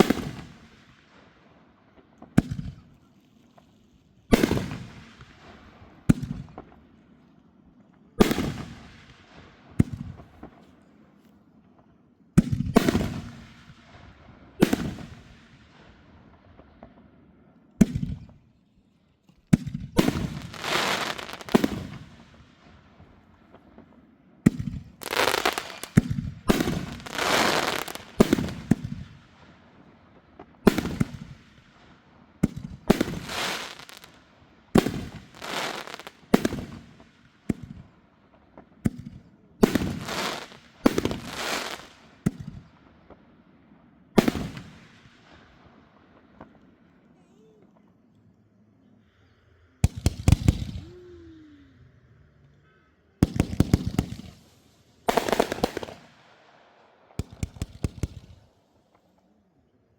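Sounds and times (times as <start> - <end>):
fireworks bangs: 0.0 - 1.3, 1.9 - 3.7, 4.3 - 6.9, 8.1 - 10.8, 12.4 - 18.4, 19.4 - 43.4, 44.1 - 47.9, 49.8 - 51.1, 53.2 - 59.0
fireworks crackling hiss: 20.0 - 23.8, 24.5 - 38.5, 39.6 - 42.7, 53.2 - 56.4.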